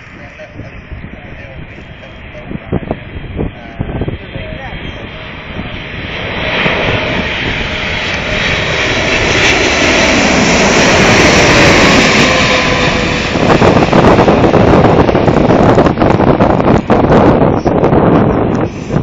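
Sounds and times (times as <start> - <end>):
jet engines of landing airplane: 0.0 - 19.0
wind rumble on microphone: 0.0 - 19.0.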